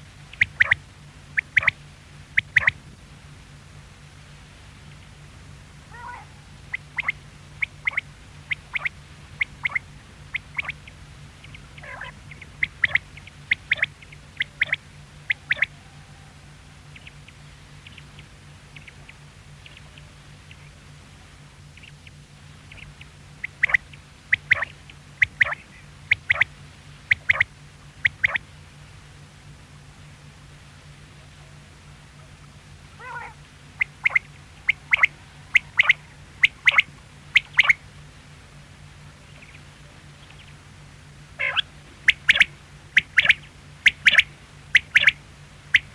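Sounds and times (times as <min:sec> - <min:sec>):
quail calling: 0:00.0 - 0:00.8, 0:01.4 - 0:01.8, 0:02.4 - 0:02.8, 0:05.9 - 0:20.8, 0:21.7 - 0:28.5, 0:33.0 - 0:37.8, 0:41.4 - 0:45.9.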